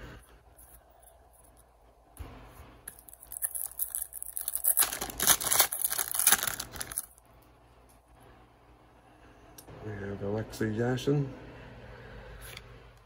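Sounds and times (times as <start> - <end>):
card pack wrapper tearing and crinkling: 2.9 - 7.2.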